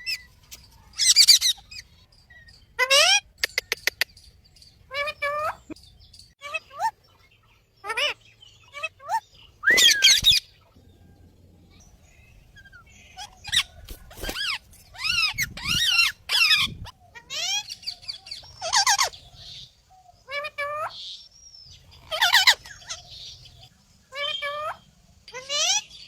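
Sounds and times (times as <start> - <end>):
parrots squawking: 7.8 - 11.1, 12.6 - 19.6, 21.9 - 23.2.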